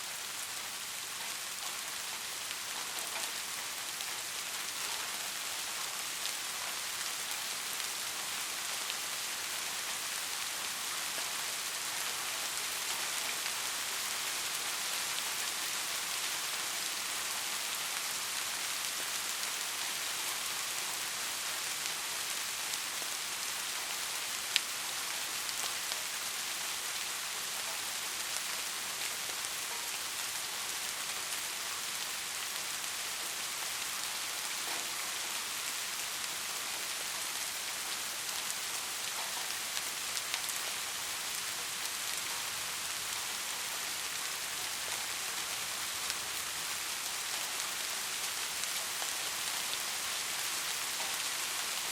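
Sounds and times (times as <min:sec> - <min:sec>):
steady rain hiss: 0:00.0 - 0:51.9.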